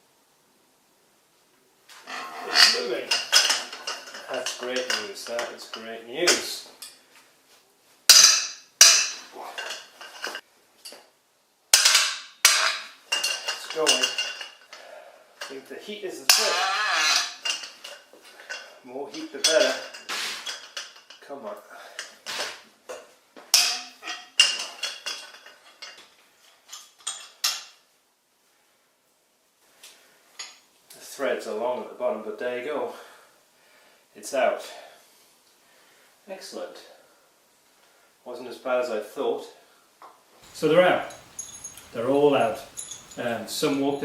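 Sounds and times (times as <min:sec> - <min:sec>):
wrench clanking on metal: 0:02.5 - 0:05.8, 0:11.8 - 0:14.6, 0:40.4 - 0:44.0.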